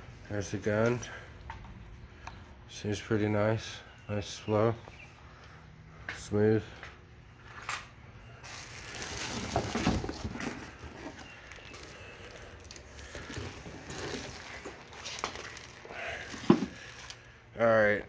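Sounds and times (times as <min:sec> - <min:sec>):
plastic packaging rustling: 0:08.4 - 0:17.4
plastic parts clicking and knocking: 0:16.3 - 0:17.2.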